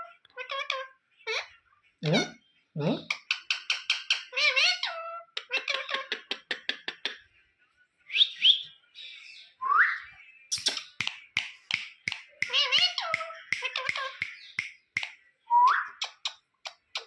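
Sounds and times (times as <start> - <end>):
parrot clicks and chirps: 3.1 - 4.3, 10.5 - 17.0.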